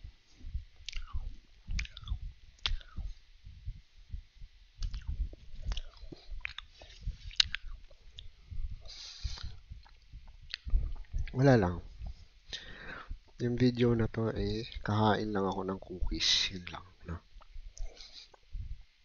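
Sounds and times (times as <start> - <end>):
person chewing crunchy cookies: 0.8 - 3.1, 4.8 - 11.4
wet mouth sounds: 0.8 - 3.1, 4.8 - 11.4.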